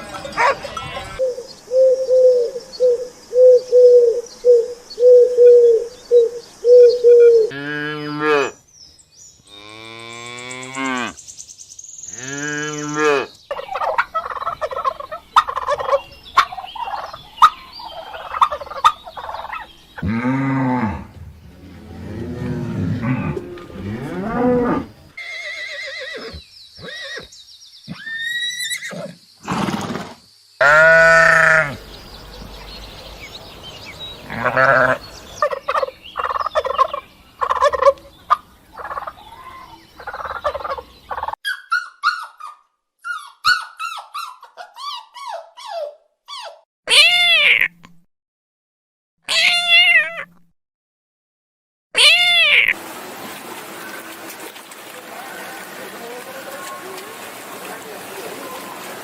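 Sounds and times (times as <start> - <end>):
high arching calls: 0.0 - 7.6, 22.2 - 45.4.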